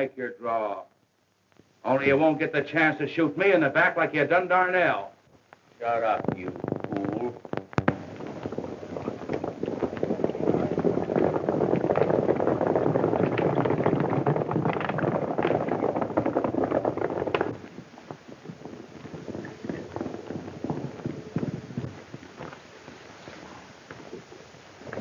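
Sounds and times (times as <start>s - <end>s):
horses galloping hoofbeats: 6.0s - 25.0s.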